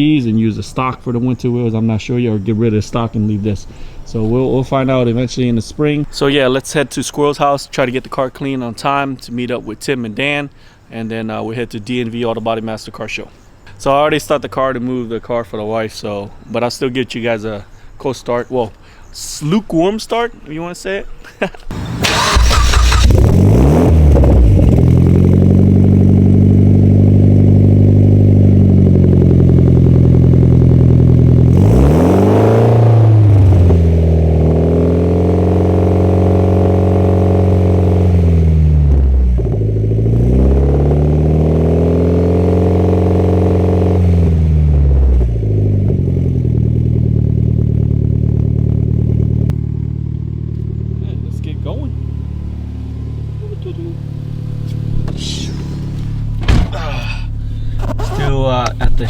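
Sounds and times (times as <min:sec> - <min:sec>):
engine rev blip: 0:21.7 - 0:28.4
car engine starting and idling: 0:21.7 - 0:59.0.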